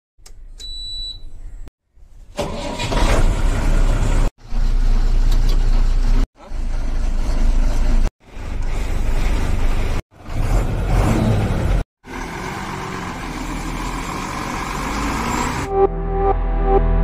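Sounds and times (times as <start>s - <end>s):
truck diesel engine running: 11.5s - 15.7s.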